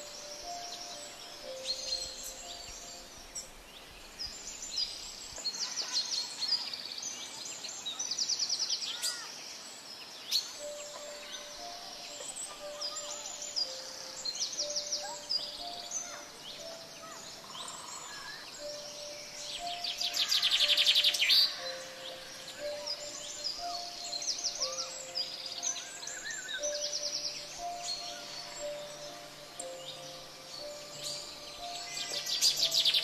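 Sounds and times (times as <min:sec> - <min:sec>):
forest birds chirping: 0:00.0 - 0:33.0
steady background hiss: 0:00.0 - 0:33.0
bird trills: 0:10.4 - 0:33.0
whistled bird notes: 0:10.4 - 0:33.0.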